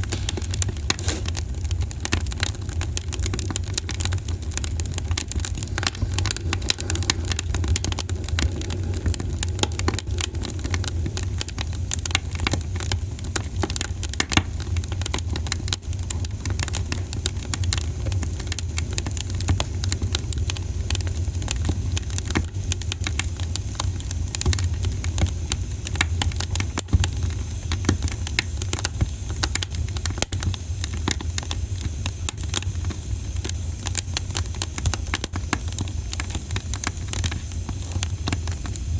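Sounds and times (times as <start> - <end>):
steady low rumble: 0.0 - 12.8
campfire crackling: 0.0 - 38.9.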